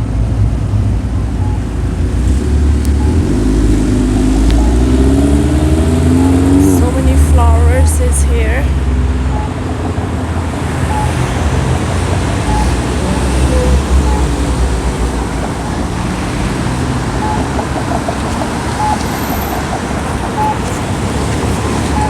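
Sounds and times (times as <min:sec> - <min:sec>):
vehicles passing rumble: 0:00.0 - 0:22.0
short high beeps: 0:01.4 - 0:01.7, 0:02.9 - 0:03.4, 0:04.2 - 0:05.2, 0:09.3 - 0:09.6, 0:10.9 - 0:11.2, 0:12.5 - 0:12.8, 0:14.0 - 0:14.4, 0:18.8 - 0:19.0.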